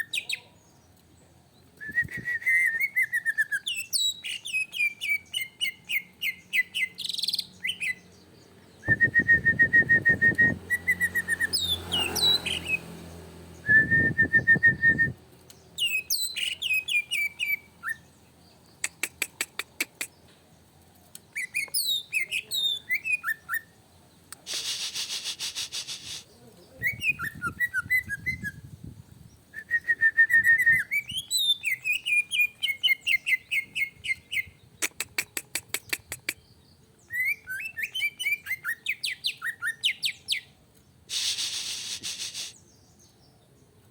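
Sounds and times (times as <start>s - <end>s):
bird whistling and trilling: 1.8s - 8.0s, 8.8s - 12.8s, 15.8s - 18.1s, 21.3s - 23.7s, 26.8s - 28.7s, 29.5s - 34.6s, 37.0s - 40.5s.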